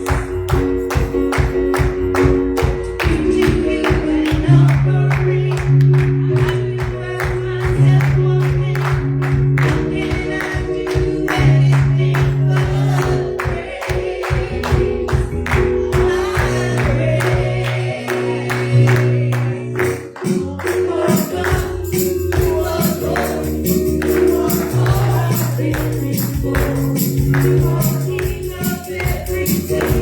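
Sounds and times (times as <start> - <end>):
tambourine beat: 0.0 - 4.4, 19.8 - 30.0
band playing gospel song: 0.0 - 30.0.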